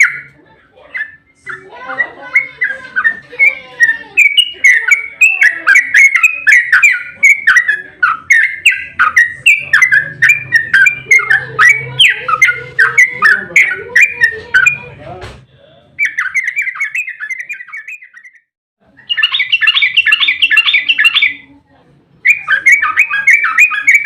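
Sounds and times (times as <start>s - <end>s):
bird song bubbling chattering notes: 16.0s - 18.4s, 19.0s - 21.4s.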